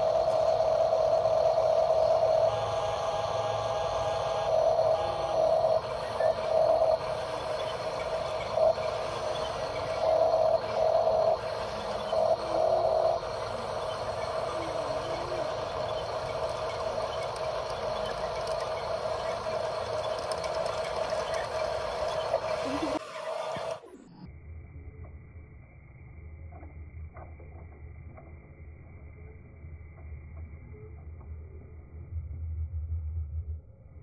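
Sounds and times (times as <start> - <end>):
small electric motor whining: 0.0 - 24.0.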